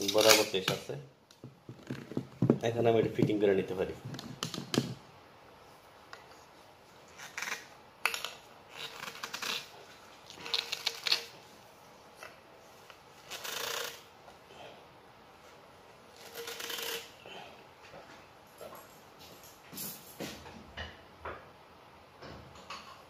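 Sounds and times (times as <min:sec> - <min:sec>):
plastic parts clicking and scraping: 0:10.3 - 0:11.3.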